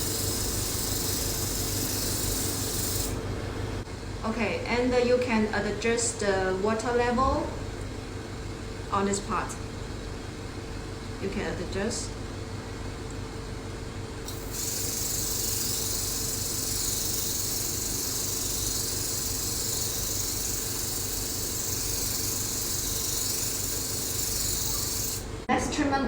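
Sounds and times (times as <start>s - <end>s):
spray gun hissing water mist: 0.0s - 3.2s, 14.3s - 25.3s
machine humming: 0.0s - 4.1s, 14.2s - 25.7s.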